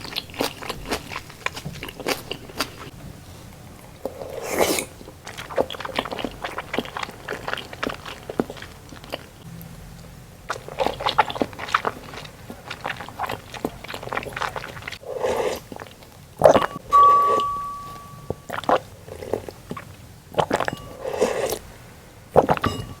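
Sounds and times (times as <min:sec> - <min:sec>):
wet chewing with mouth clicks: 0:00.0 - 0:09.5, 0:10.5 - 0:16.8, 0:18.4 - 0:21.6
clear ringing tone: 0:16.5 - 0:18.6, 0:22.6 - 0:23.0.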